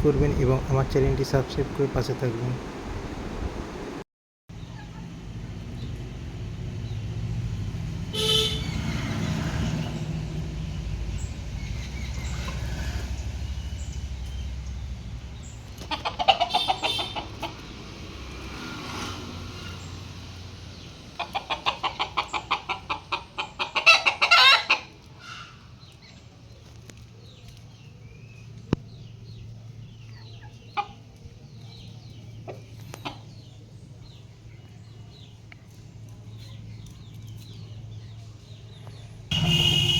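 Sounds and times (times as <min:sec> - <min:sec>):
chickens clucking and cackling: 0:15.6 - 0:18.1, 0:20.7 - 0:26.0, 0:29.3 - 0:34.5.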